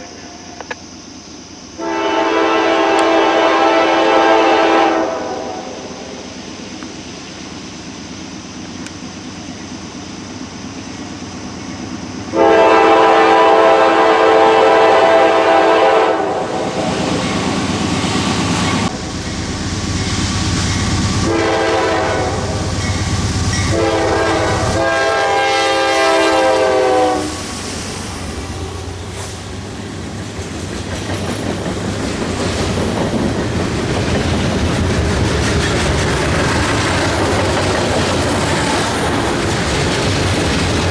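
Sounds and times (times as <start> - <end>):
locomotive air horn blasts: 1.8 - 5.9, 12.3 - 16.8, 21.2 - 22.8, 23.6 - 27.5
train rumbling and clattering: 4.0 - 40.9.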